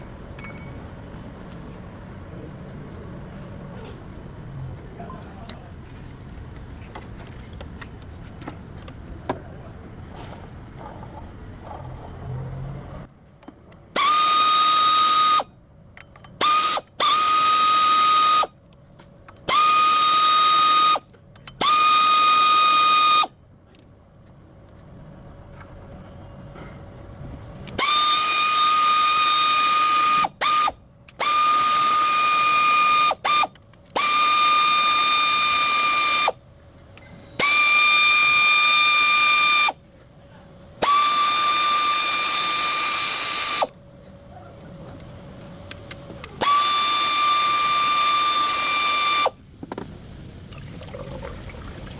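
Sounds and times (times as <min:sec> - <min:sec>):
power wrench whining: 0:14.0 - 0:15.5, 0:16.3 - 0:18.6, 0:19.4 - 0:23.3, 0:27.6 - 0:36.4, 0:37.3 - 0:39.8, 0:40.8 - 0:43.8, 0:45.7 - 0:49.4.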